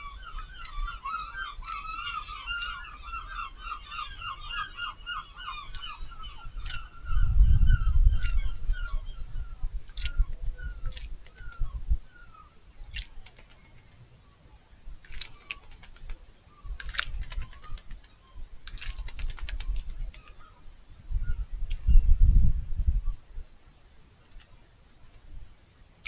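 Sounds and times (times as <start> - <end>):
bird wings splashing in water: 9.9 - 11.6, 12.9 - 13.8, 15.0 - 16.2, 16.8 - 20.5.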